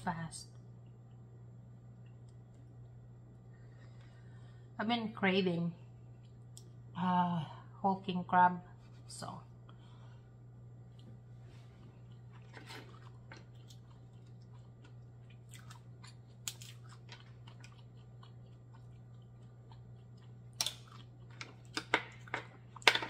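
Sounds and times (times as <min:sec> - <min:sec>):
steady low hum: 0:00.0 - 0:23.0
close-up chewing: 0:10.9 - 0:22.8.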